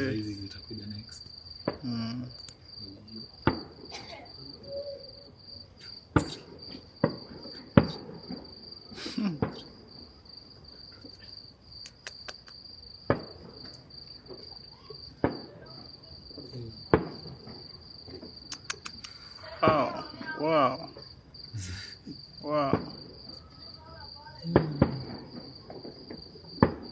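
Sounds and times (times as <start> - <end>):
distant fireworks bangs: 0.0 - 11.2, 13.0 - 18.5, 21.7 - 26.9
high insect trill: 0.0 - 26.9.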